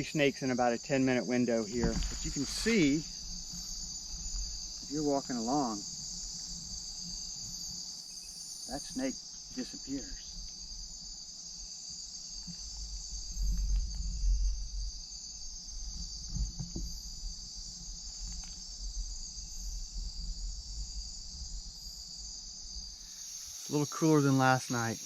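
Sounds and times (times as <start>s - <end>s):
crickets and insects buzzing: 0.0s - 25.0s
low thumps: 1.7s - 3.3s.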